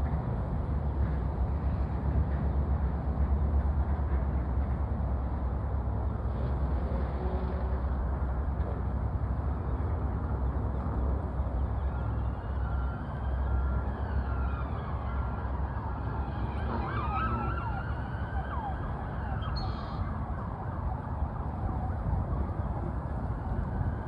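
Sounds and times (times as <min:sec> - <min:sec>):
steady rumbling background noise: 0:00.0 - 0:17.0
distant siren wailing: 0:11.3 - 0:24.0.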